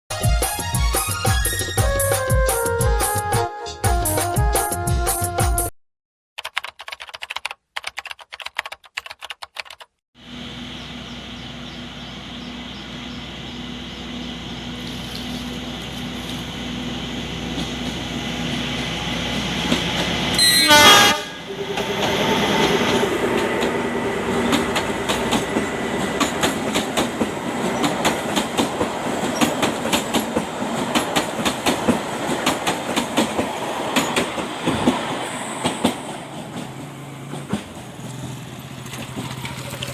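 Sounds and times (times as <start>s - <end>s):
locomotive engine running: 10.2s - 20.4s, 21.4s - 39.9s
train horn: 20.3s - 25.8s
wheels clattering over rail joints: 21.8s - 39.9s.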